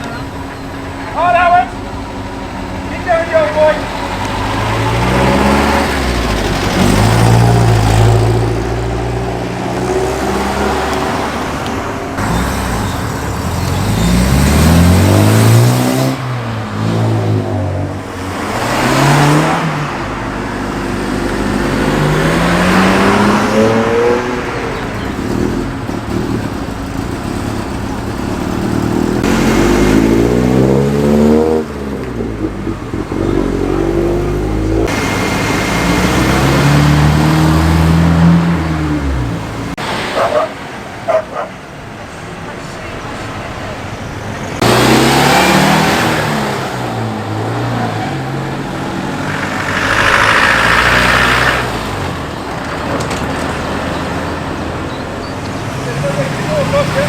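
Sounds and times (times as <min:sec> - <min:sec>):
cars accelerating past: 0:00.0 - 0:41.6, 0:43.1 - 0:57.0
rush of car passing close: 0:03.0 - 0:26.6, 0:33.5 - 0:41.7, 0:43.0 - 0:57.0.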